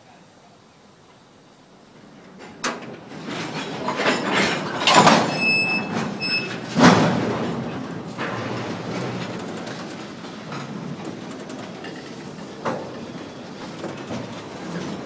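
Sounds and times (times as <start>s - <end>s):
freight cars clanking and rumbling: 1.1s - 15.0s
high squeals: 4.9s - 6.7s.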